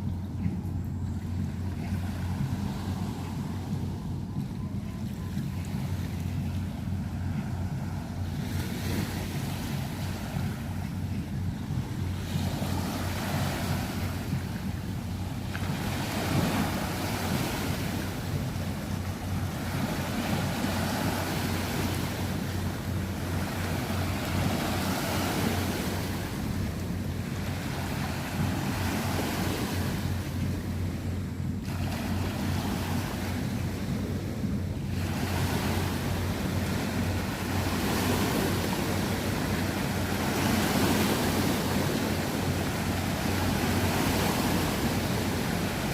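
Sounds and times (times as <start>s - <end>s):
waves slapping against bank: 0.0s - 45.9s.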